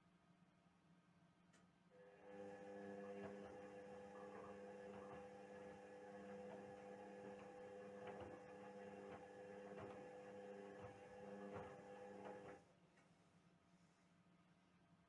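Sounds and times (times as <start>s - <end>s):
washing machine hum: 2.0s - 12.7s.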